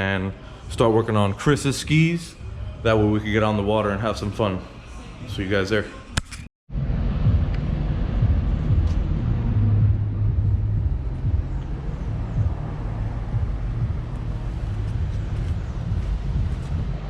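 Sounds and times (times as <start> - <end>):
car engine and road rumble: 6.7 - 17.0.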